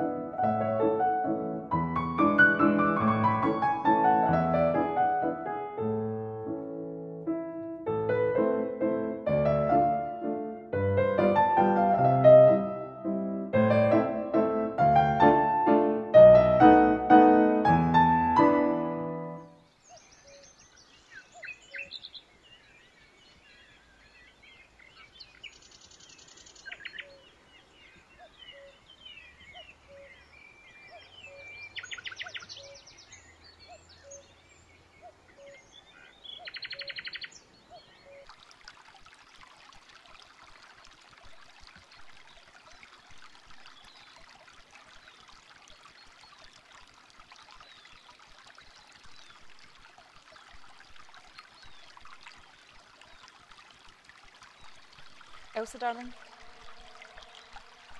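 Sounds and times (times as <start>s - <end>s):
stream babbling: 0.0s - 6.2s, 8.1s - 57.9s
songbirds chirping: 19.2s - 57.9s.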